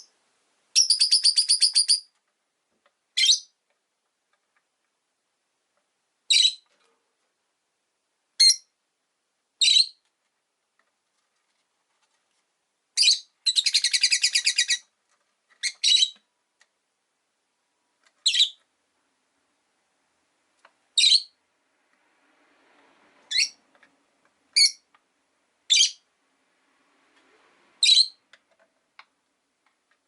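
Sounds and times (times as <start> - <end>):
lovebirds chirping: 0.8 - 2.1, 3.2 - 3.6, 13.0 - 14.9, 15.6 - 16.3, 18.2 - 18.7, 20.9 - 21.4, 23.3 - 23.6, 24.5 - 24.9, 25.7 - 26.0, 27.8 - 28.2.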